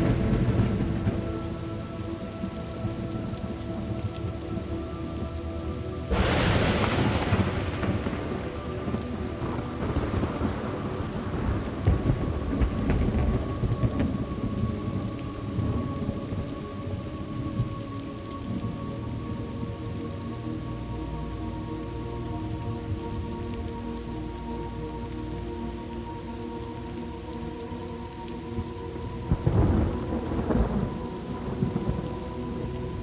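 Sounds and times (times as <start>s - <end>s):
thunderclap rolling into rumbling: 0.0s - 2.0s, 6.1s - 16.5s, 29.3s - 32.2s
steady rain falling: 0.0s - 33.0s.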